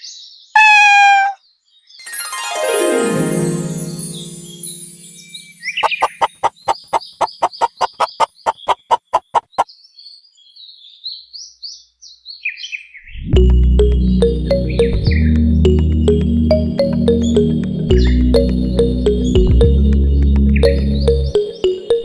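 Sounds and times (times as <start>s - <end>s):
birds chirping: 0.6s - 1.4s, 5.1s - 12.8s
music: 2.0s - 5.8s, 13.4s - 22.0s
quick run of clicks: 5.9s - 9.6s.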